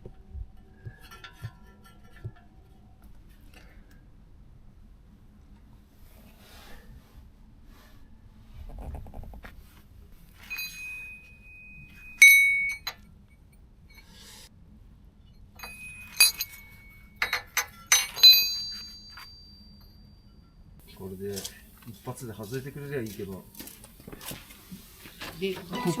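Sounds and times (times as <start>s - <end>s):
steel tools clinking on metal: 10.4s - 13.0s, 15.6s - 20.0s, 25.6s - 26.0s.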